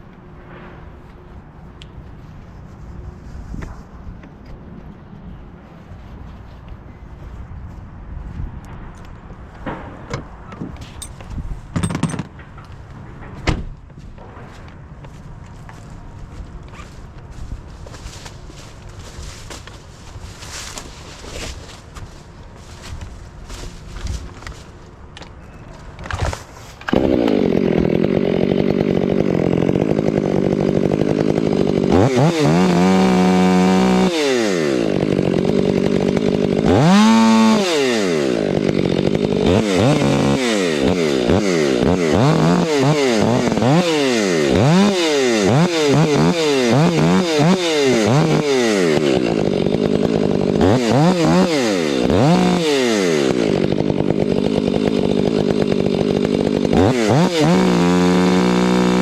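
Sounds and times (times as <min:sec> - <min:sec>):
chainsaw cutting wood: 0:11.8 - 0:12.4, 0:16.6 - 0:25.4, 0:26.0 - 0:59.0.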